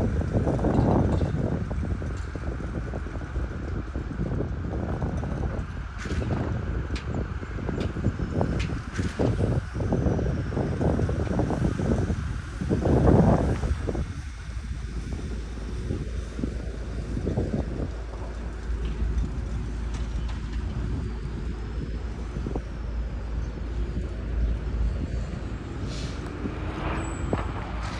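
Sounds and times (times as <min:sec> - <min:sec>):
jet engines rumbling: 0:00.0 - 0:27.9
wind buffeting microphone: 0:00.0 - 0:27.9
high whine sliding down: 0:20.7 - 0:27.9.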